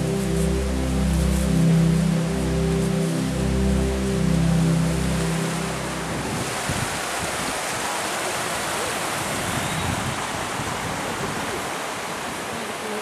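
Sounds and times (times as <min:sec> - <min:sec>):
background music: 0:00.0 - 0:06.5
rushing water: 0:00.0 - 0:13.0.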